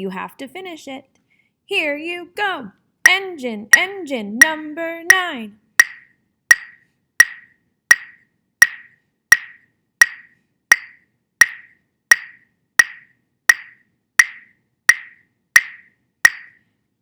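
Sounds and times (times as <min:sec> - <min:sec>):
wood block click beat: 0:03.1 - 0:16.6.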